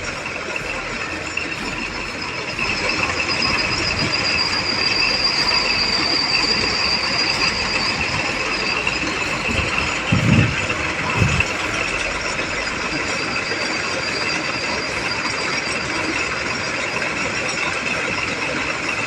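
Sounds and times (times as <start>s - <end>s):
low thumps: 0.0s - 12.8s
drilling rig running: 0.0s - 19.0s
high-pitched squeal: 0.0s - 19.0s.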